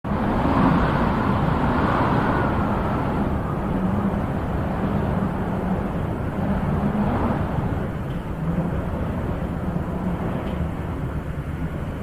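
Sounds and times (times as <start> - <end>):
wind blowing: 0.0 - 12.0.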